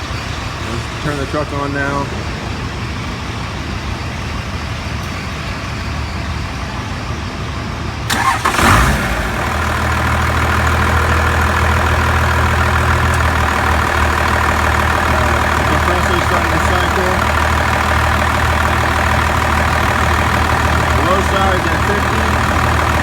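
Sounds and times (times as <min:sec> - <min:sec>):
truck engine idling: 0:00.0 - 0:23.0
truck starter cranking: 0:08.0 - 0:23.0.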